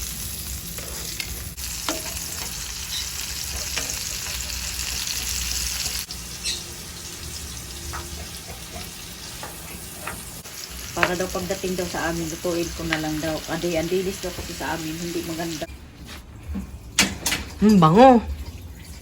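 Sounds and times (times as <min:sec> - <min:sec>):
food sizzling in a frying pan: 0:00.0 - 0:15.7
utensil scraping a pan: 0:00.7 - 0:06.6, 0:07.8 - 0:11.3.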